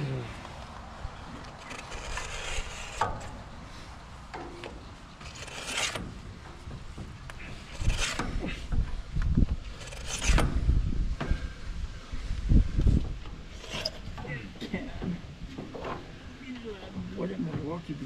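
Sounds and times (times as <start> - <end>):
metal scraping and rubbing: 1.3 - 10.9, 13.3 - 14.6
metal clunks: 4.3 - 11.5.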